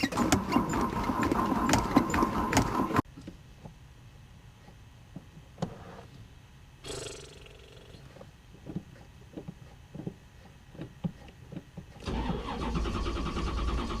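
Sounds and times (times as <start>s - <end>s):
car engine cranking and starting: 0.0s - 3.0s, 8.7s - 14.0s.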